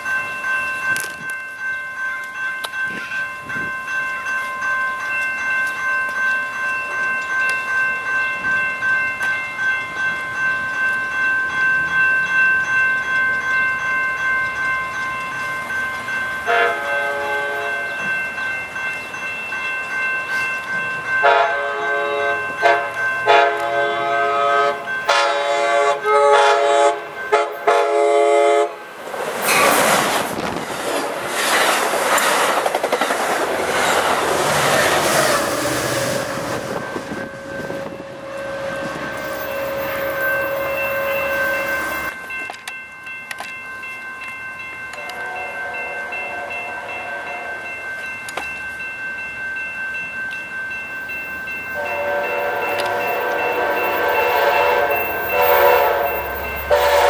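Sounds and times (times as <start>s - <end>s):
crossing bells ringing: 0.0s - 57.0s
train horn blasts: 16.5s - 18.0s, 21.2s - 28.8s, 37.2s - 42.1s, 45.0s - 47.5s, 51.8s - 57.0s
train wheels clattering on rails: 29.0s - 43.6s.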